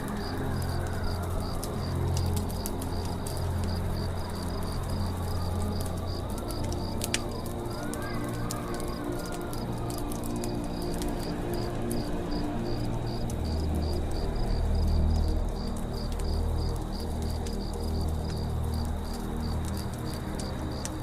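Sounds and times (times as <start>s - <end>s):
campfire crackling and popping: 0.0s - 21.0s
insects chirping: 0.1s - 8.2s.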